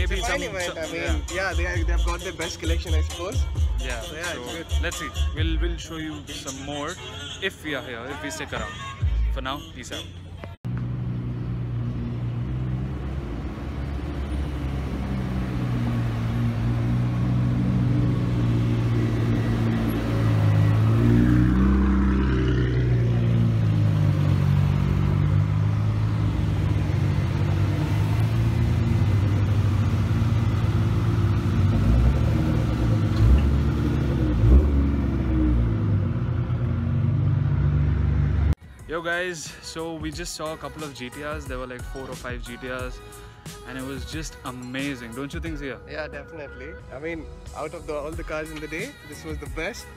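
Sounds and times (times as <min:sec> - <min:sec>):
car engines droning: 0:10.2 - 0:38.6
engine revving: 0:10.7 - 0:38.6.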